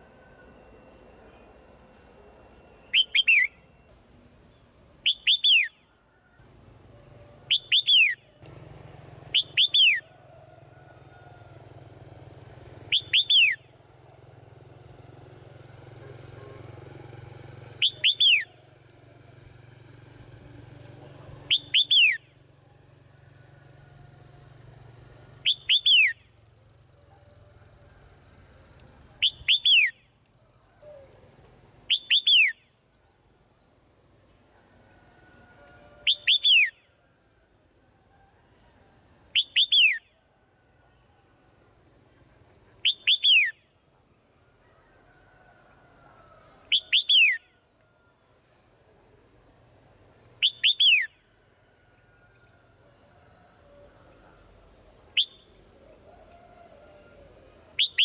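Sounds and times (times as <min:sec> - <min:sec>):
faint low hum: 0:00.0 - 0:58.0.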